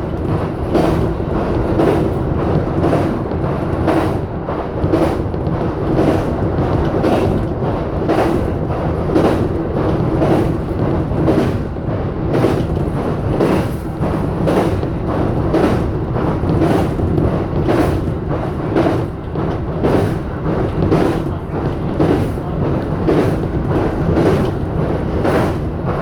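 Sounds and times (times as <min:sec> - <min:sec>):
electric train rolling rumble: 0:00.0 - 0:26.0
wheels clattering over rail joints: 0:00.0 - 0:26.0.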